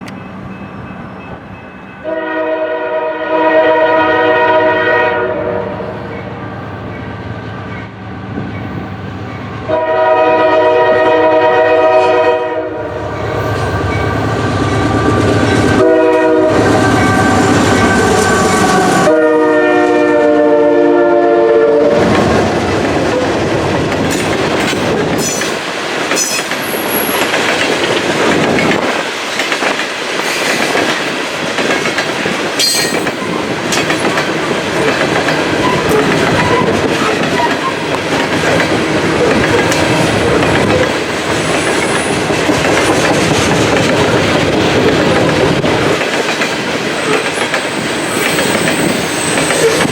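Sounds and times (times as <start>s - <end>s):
locomotive air horn blasts: 2.0s - 5.9s, 9.6s - 14.2s, 15.7s - 22.1s
diesel locomotive rumble: 6.0s - 49.9s
train wheels clacking on rails: 13.0s - 19.1s, 22.0s - 49.9s.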